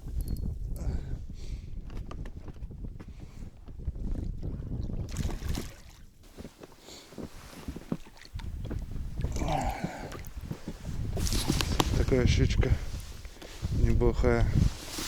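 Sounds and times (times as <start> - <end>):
wind buffeting microphone: 0.0 - 6.5, 7.1 - 15.0
handling knocks and rustles: 6.3 - 15.0.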